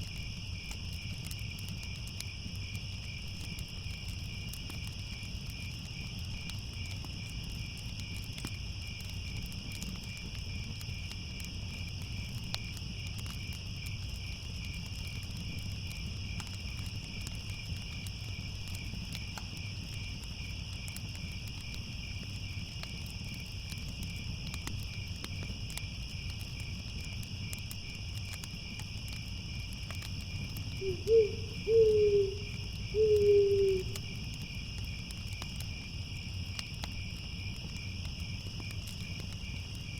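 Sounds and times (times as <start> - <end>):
cricket chorus chirring: 0.0 - 39.9
faint crackles: 0.0 - 39.9
owl hooting: 30.8 - 34.0.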